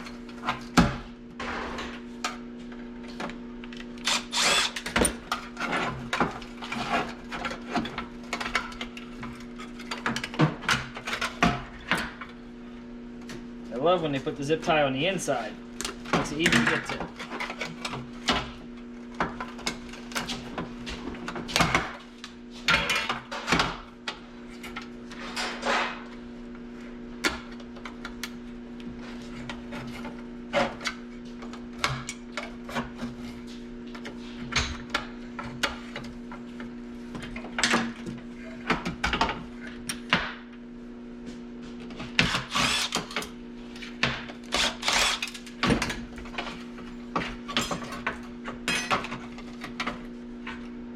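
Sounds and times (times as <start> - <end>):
hand tools clicking and snipping: 4.0 - 5.0, 42.2 - 43.3.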